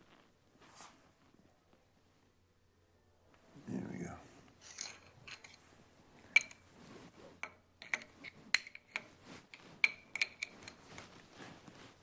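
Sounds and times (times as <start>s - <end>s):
metal parts clicking and clinking: 4.7s - 5.6s.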